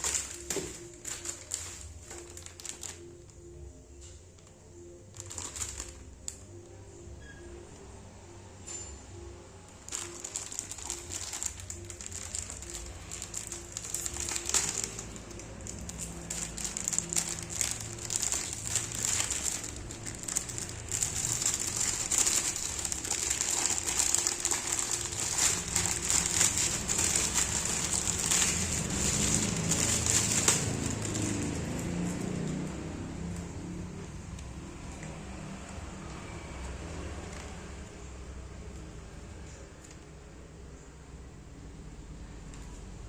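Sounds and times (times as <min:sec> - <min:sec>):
packaging crinkling and rustling: 0:00.0 - 0:03.4, 0:04.4 - 0:06.6, 0:09.8 - 0:32.6.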